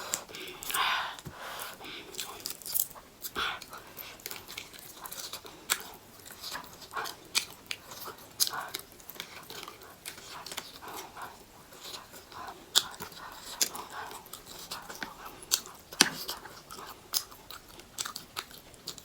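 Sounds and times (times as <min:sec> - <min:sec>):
chewing and mouth smacks: 0:00.0 - 0:19.0.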